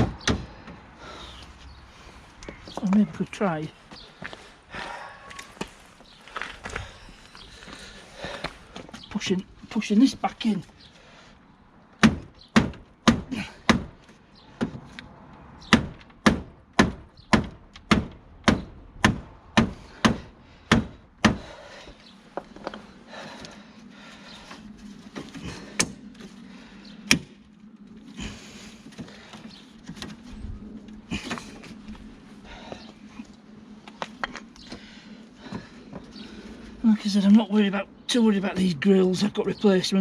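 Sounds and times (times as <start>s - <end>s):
steady low hum: 17.4s - 38.2s.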